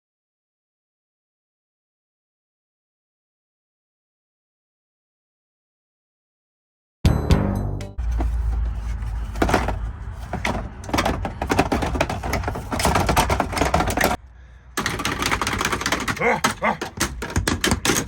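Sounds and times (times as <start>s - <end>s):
clicks and scrapes of tools: 9.0s - 14.2s.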